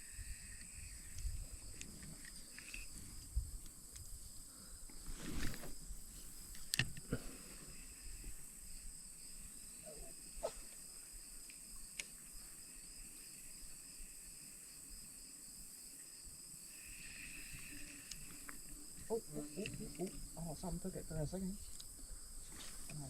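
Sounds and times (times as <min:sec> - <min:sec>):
insects droning: 0:00.0 - 0:23.0
faint sharp clicks: 0:11.4 - 0:12.2.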